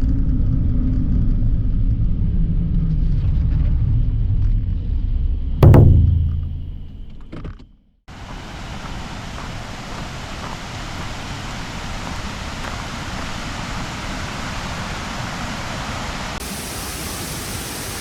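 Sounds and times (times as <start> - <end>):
thump: 5.6 - 7.2.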